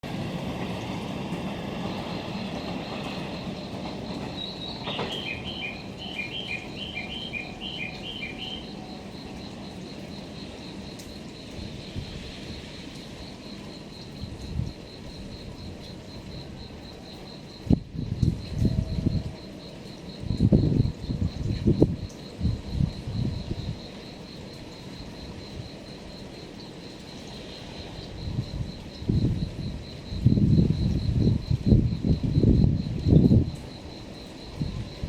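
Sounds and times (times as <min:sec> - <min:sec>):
low rumble of a train: 0:00.0 - 0:35.0
insect pulsing chirp: 0:01.8 - 0:35.0
bird calling paired notes: 0:04.7 - 0:08.6.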